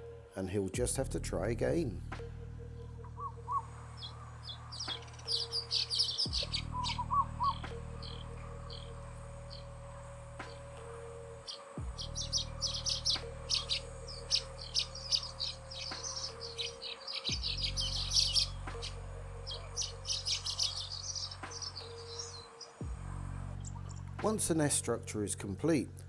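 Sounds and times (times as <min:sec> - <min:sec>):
steady low hum: 0:00.0 - 0:26.0
birds chattering high notes: 0:11.4 - 0:22.8.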